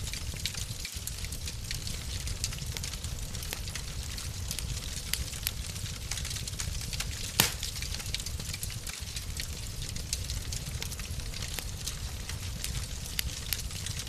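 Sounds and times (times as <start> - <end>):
wood fire crackling: 0.0 - 14.0
loud fire pop: 7.3 - 7.9.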